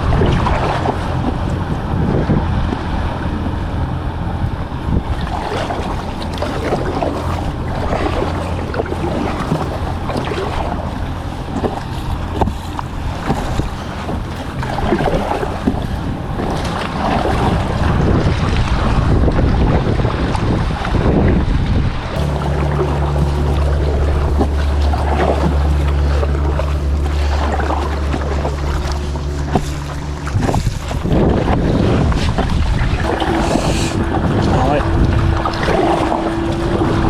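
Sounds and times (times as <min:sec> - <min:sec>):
paddle splashing in water: 0:00.0 - 0:01.9, 0:03.8 - 0:21.2, 0:22.1 - 0:37.0
wind noise on microphone: 0:00.0 - 0:37.0.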